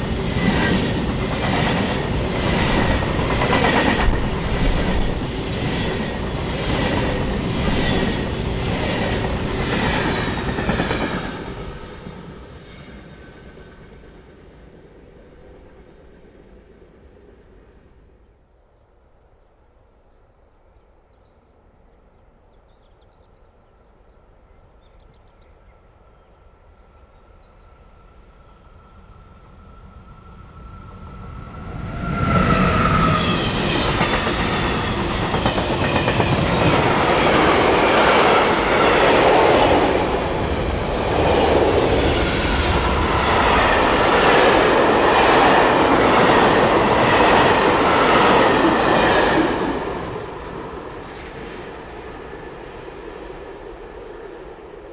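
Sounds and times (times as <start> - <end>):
train wheels clattering on rails: 0.0 - 12.6, 31.6 - 52.2
freight train passing: 0.0 - 18.4, 23.8 - 54.9.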